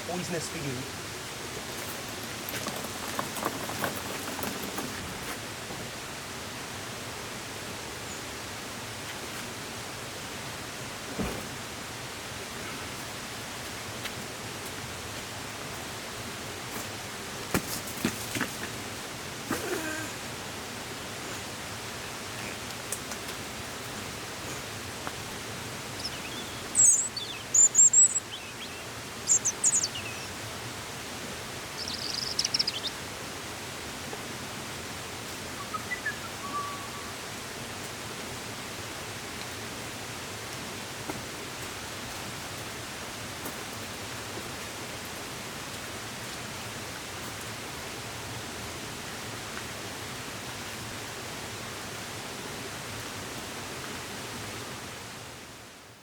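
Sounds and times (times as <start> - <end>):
steady outdoor hiss: 0.0 - 56.0
small bird chirping: 25.9 - 30.4, 31.7 - 33.0, 35.6 - 37.1.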